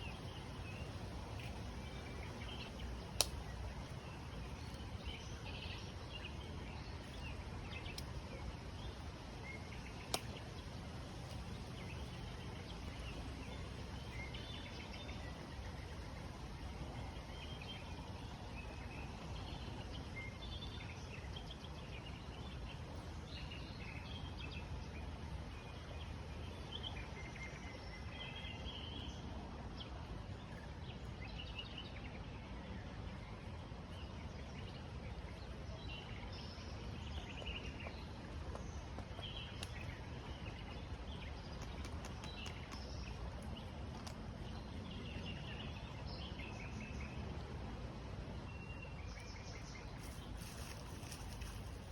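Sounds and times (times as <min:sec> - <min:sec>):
small birds chirping: 0:00.0 - 0:15.5, 0:34.1 - 0:47.3, 0:48.6 - 0:51.9
low rushing background noise: 0:00.0 - 0:51.9.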